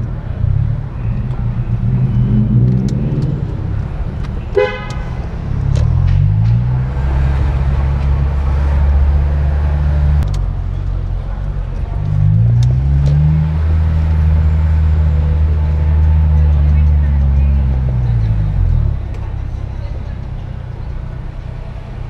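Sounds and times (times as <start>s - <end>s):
car engine droning: 0.0s - 22.0s
short car horn toot: 4.5s - 5.1s.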